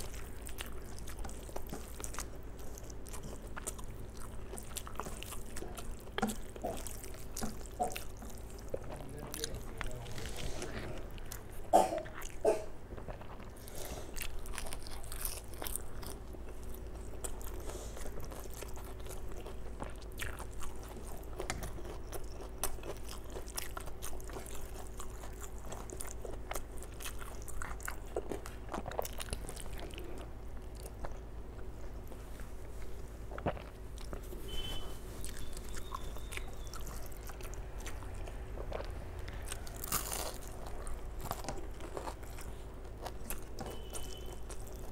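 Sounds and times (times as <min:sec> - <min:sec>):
wet chewing and smacking: 0:00.0 - 0:44.9.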